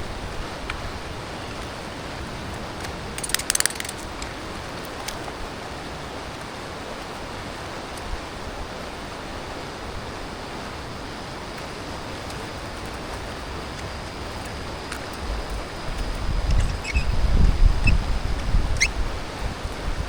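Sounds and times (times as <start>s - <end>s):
rushing outdoor background noise: 0.0s - 20.0s
sharp mechanical clicks: 3.2s - 4.3s.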